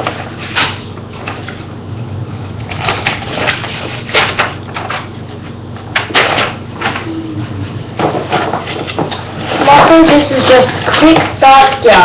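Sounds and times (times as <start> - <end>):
paper and cardboard rustling: 2.7 - 12.0.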